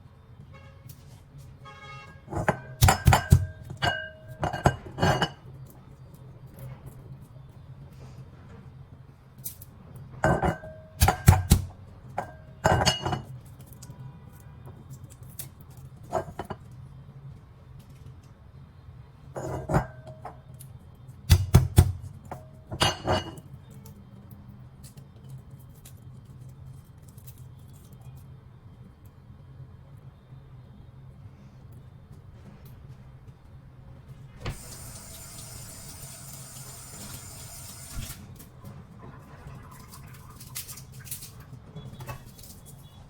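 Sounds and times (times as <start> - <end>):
pestle pounding in mortar: 11.0 - 11.7, 21.3 - 22.0.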